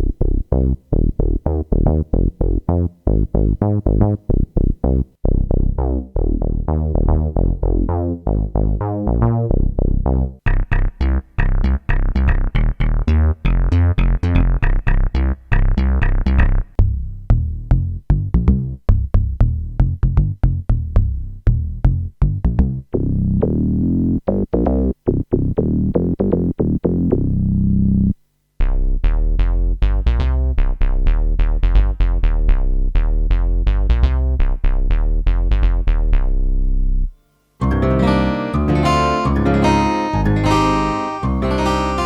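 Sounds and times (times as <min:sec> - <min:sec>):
synthesizer bass line: 0:00.0 - 0:16.7, 0:23.0 - 0:37.0, 0:37.6 - 0:42.0
synthesizer sharp rhythmic notes: 0:37.6 - 0:42.0.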